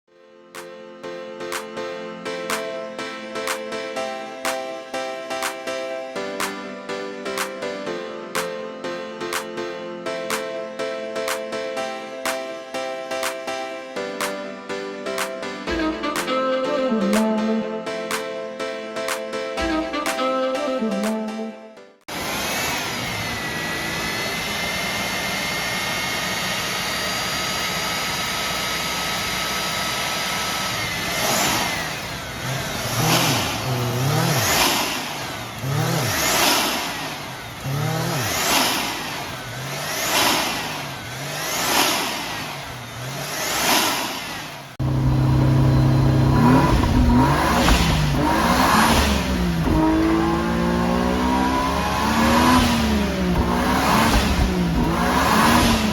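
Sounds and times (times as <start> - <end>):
rotary engine whining and revving: 22.1 - 55.9.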